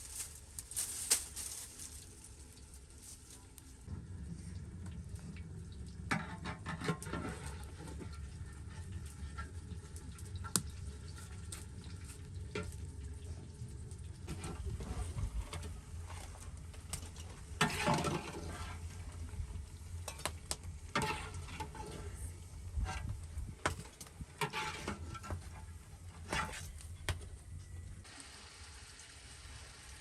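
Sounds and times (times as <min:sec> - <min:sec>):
utensil scraping a cooking pot: 0:06.1 - 0:09.8, 0:14.3 - 0:28.0.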